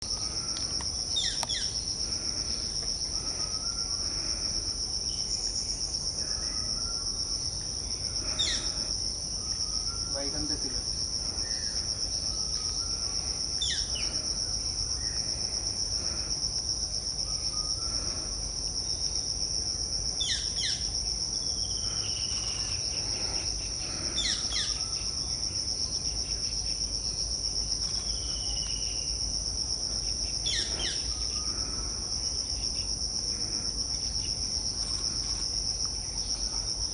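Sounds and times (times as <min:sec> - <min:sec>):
high-pitched insect drone: 0:00.0 - 0:36.9.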